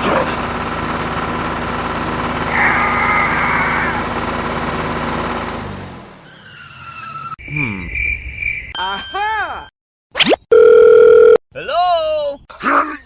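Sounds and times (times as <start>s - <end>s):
vehicle engine running: 0.0s - 6.3s
tyres skidding screech: 2.4s - 4.3s, 6.0s - 7.8s.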